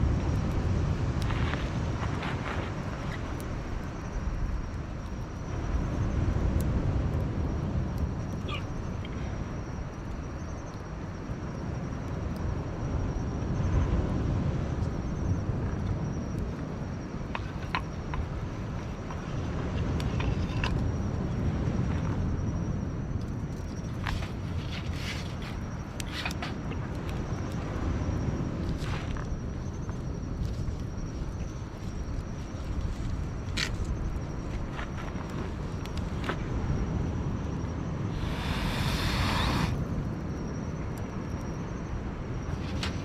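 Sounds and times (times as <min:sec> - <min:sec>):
sharp crackles: 0:23.2 - 0:27.9.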